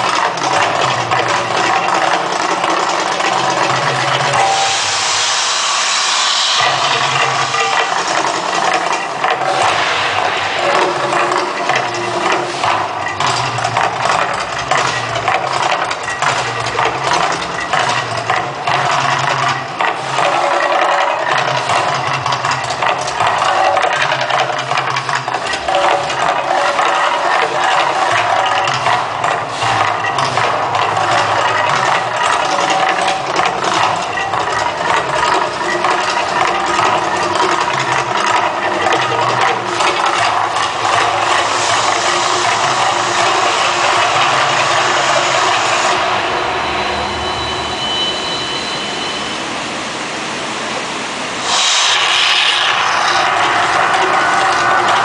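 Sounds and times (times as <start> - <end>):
dense rumble of effects: 4.8 - 13.2.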